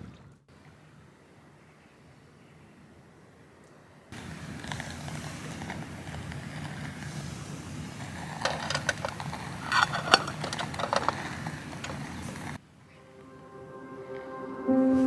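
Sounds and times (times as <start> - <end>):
small objects clicking and knocking: 4.2 - 12.6.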